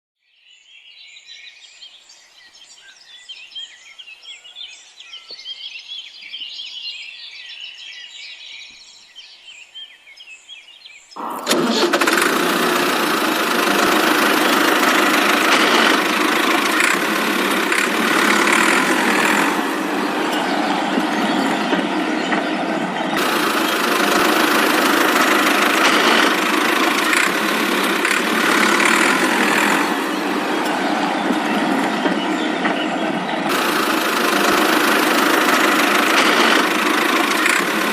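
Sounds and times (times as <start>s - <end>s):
birds chirping: 0.8s - 37.9s
loud engine-like running noise: 11.2s - 37.9s.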